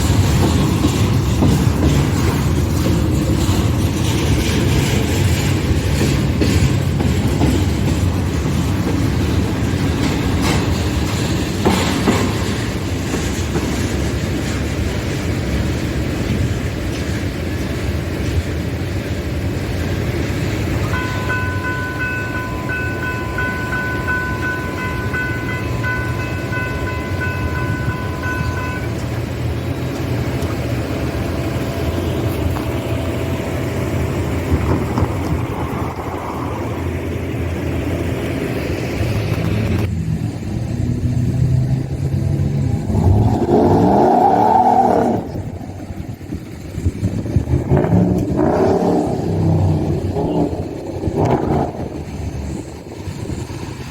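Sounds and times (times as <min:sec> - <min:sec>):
train rumbling past: 0:00.0 - 0:53.9
vehicle engine rising in pitch: 0:39.3 - 0:53.5.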